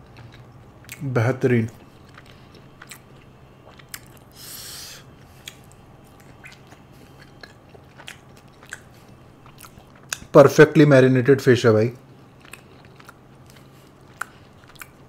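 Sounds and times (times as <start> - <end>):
person chewing with wet mouth clicks: 0.0 - 1.1, 1.7 - 4.3, 5.1 - 10.3, 12.4 - 15.0.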